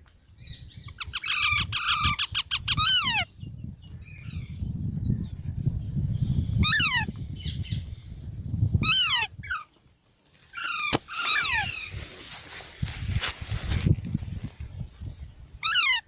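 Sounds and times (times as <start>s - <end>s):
parrot squawking: 8.8s - 9.7s, 10.6s - 11.9s, 15.6s - 16.0s.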